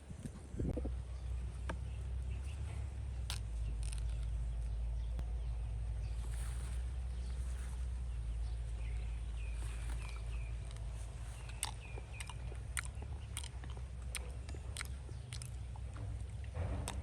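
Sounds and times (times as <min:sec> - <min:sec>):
steady low hum: 0:00.0 - 0:17.0
sharp clicks or crunches: 0:03.2 - 0:05.3, 0:09.8 - 0:17.0.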